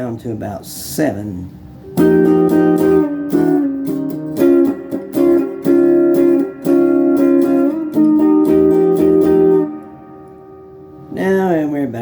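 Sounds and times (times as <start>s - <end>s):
overdriven electric guitar chords: 1.8s - 11.2s.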